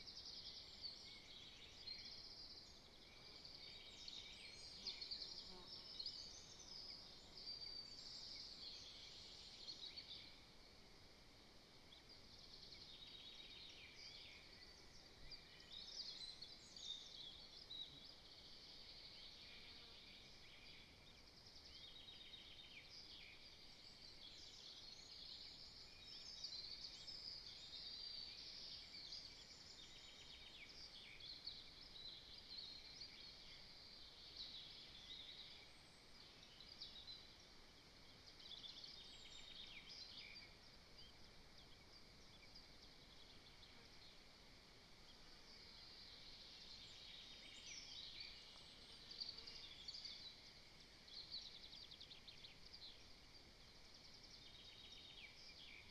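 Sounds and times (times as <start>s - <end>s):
small birds chirping: 0.0s - 10.6s, 11.4s - 55.9s.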